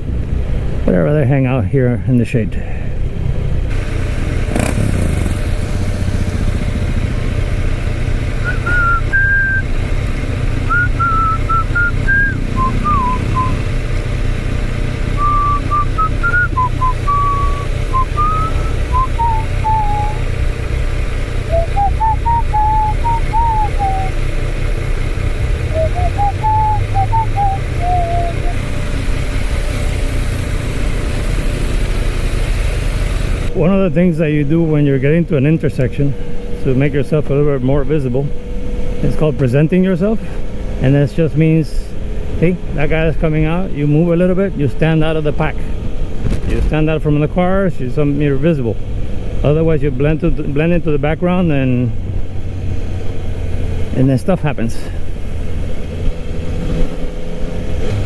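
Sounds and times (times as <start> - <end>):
motorcycle engine running: 3.1 - 44.6
person whistling a tune: 8.4 - 9.7, 10.7 - 13.6, 15.2 - 20.3, 21.5 - 24.2, 25.7 - 28.6.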